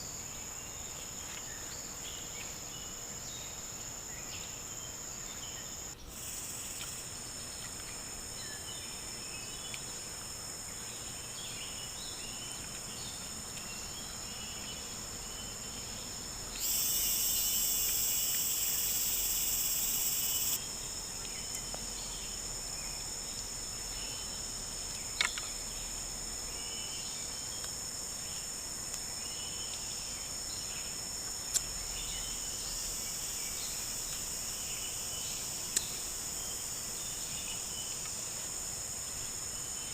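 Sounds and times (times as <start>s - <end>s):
insects trilling: 0.0s - 39.9s
faint chirps: 10.7s - 24.5s
high buzz: 16.5s - 20.8s.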